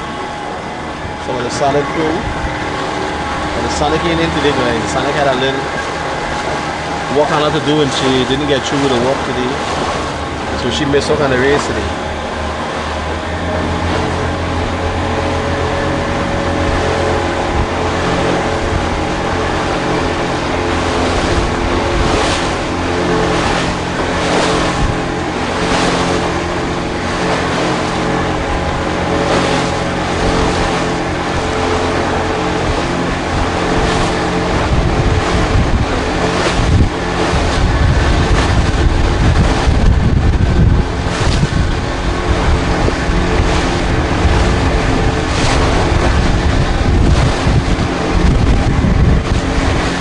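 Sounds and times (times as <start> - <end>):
motorboat engine running: 0.0 - 50.0
water splashing against hull: 0.0 - 50.0
wind on microphone: 0.0 - 50.0.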